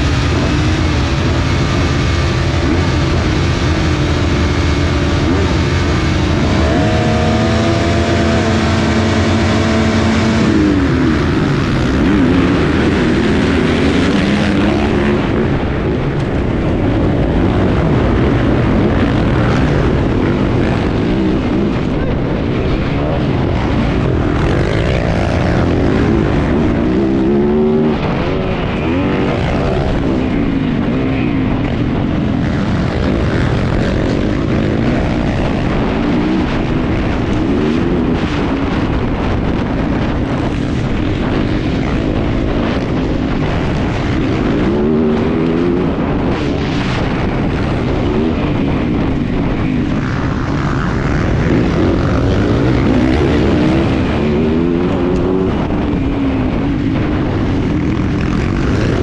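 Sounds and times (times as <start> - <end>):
motocross engine revving: 0.0 - 15.8, 23.1 - 30.3, 50.0 - 55.9.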